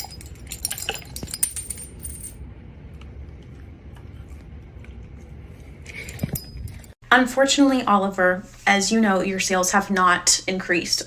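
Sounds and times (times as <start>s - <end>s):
light metallic clinks and rattles: 0.0s - 2.4s, 5.9s - 7.0s.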